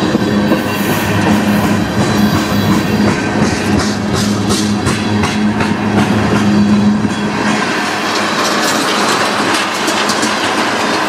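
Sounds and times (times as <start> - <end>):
train wheels rolling on rails: 0.0 - 11.0.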